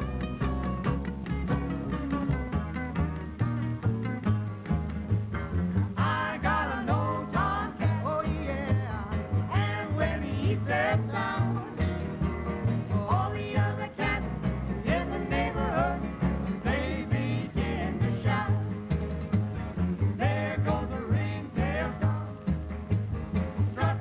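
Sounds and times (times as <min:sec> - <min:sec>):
acoustic guitar strumming: 0:00.0 - 0:24.0
pulsing bass line: 0:00.0 - 0:24.0
group singing: 0:06.0 - 0:12.1, 0:12.9 - 0:18.8, 0:20.1 - 0:22.4, 0:23.6 - 0:24.0.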